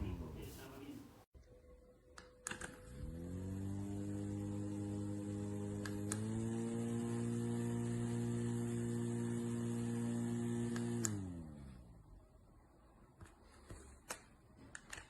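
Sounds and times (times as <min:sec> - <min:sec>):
handheld fan humming: 0:02.4 - 0:12.0.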